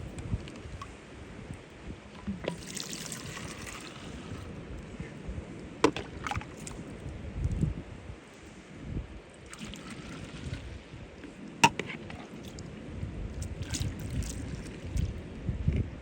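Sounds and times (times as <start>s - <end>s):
water splashing and sloshing: 2.1s - 4.5s, 5.8s - 7.0s, 9.4s - 12.8s, 13.4s - 15.3s.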